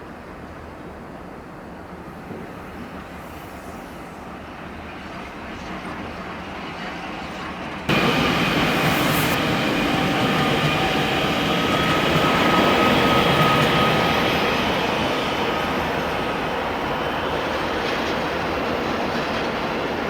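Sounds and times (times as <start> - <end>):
train passing on tracks: 0.0 - 20.0
faint high steady tones: 7.9 - 17.7.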